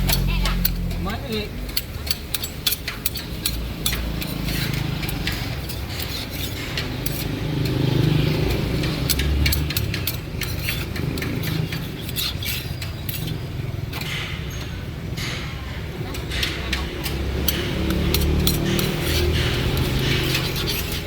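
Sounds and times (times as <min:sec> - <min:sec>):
light clicks and clatter: 0:01.7 - 0:14.2
vehicle engine rumbling past: 0:03.2 - 0:21.0.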